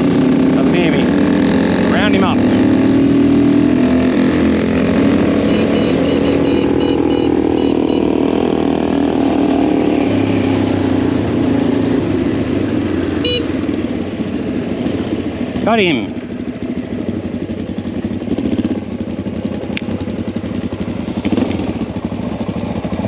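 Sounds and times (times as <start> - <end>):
motorcycle engine running: 0.0 - 23.0
short high-pitched beeps: 5.4 - 8.1, 13.2 - 13.5.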